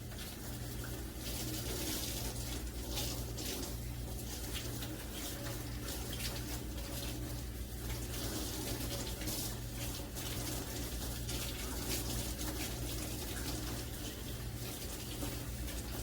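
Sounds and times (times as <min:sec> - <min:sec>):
water running from tap: 0:00.0 - 0:16.0.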